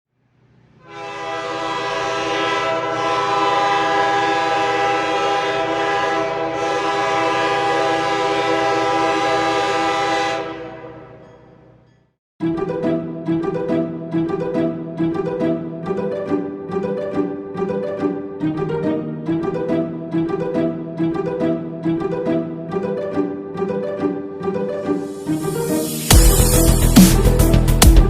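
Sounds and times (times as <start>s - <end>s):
locomotive air horn blast: 0.8s - 11.2s.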